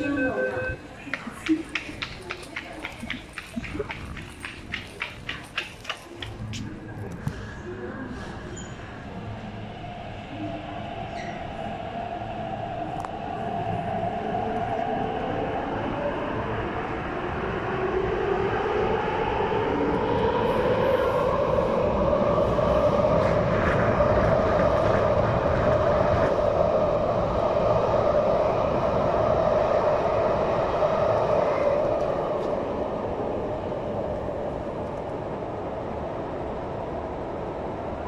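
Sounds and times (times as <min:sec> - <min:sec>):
wheels rumbling on rail: 0:00.8 - 0:38.0.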